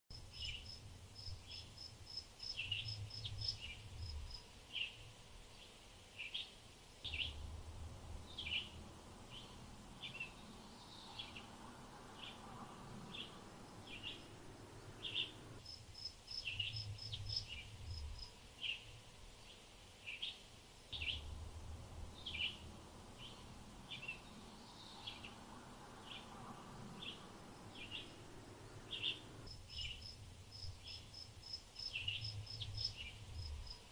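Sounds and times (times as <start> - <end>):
small birds chirping: 0.1 - 33.9
low wind rumble: 2.5 - 4.5, 7.0 - 15.7, 16.5 - 18.4, 20.9 - 33.9.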